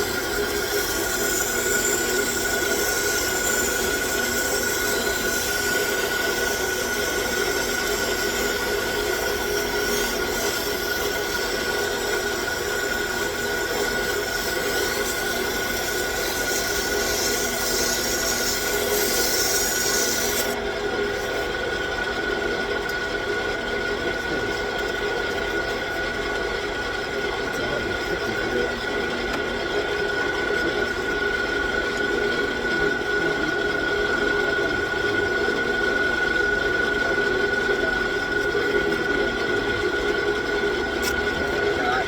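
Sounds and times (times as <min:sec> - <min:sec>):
lathe running with high tone: 0:00.0 - 0:42.0
abrasive paper rubbing workpiece: 0:00.5 - 0:20.6.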